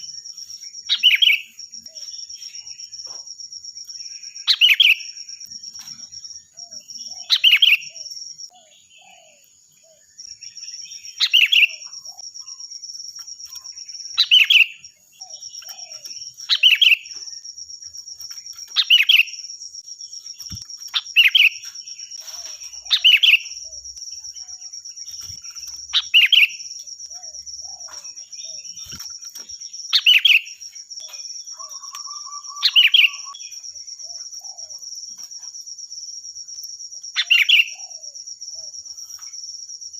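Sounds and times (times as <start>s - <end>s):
bird calling: 6.5s - 12.6s, 13.4s - 17.4s, 18.7s - 19.4s, 20.4s - 24.0s, 25.0s - 34.8s.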